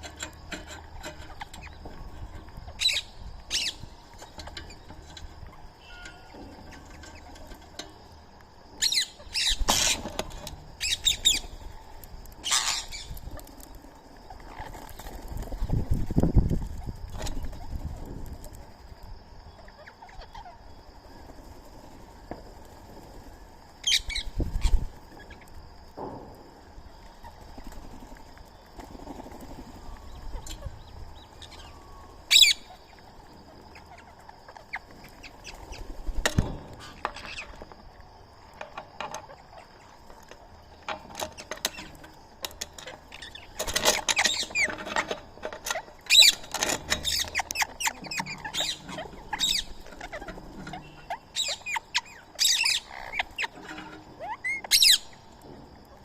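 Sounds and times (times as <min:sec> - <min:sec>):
birds chattering and squawking: 0:00.0 - 0:56.0.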